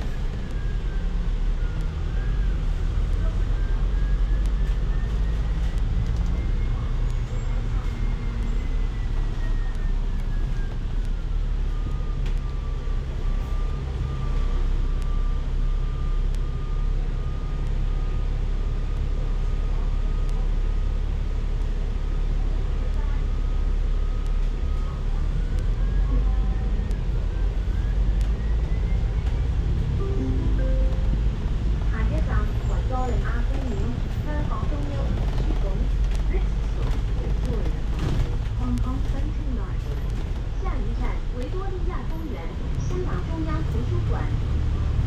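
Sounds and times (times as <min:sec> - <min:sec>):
bus drivetrain rumble: 0:00.0 - 0:45.0.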